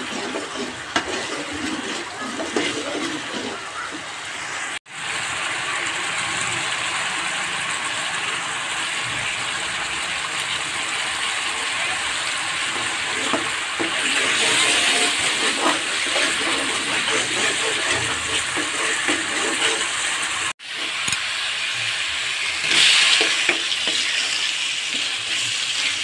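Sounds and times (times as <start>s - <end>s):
metal spatula stirring in wok: 0.0s - 4.6s, 12.6s - 21.2s, 22.4s - 26.0s
paste sizzling in oil: 0.0s - 26.0s.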